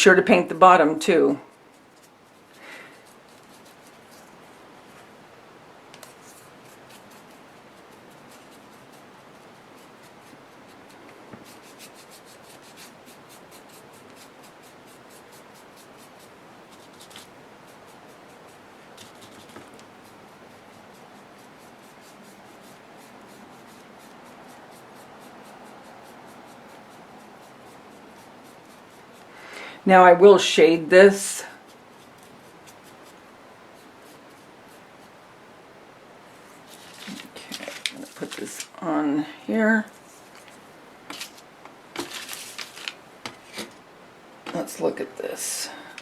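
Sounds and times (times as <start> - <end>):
paintbrush scratchy strokes: 1.5 - 5.1, 6.0 - 29.3, 30.4 - 35.2, 36.3 - 38.7, 39.9 - 43.8.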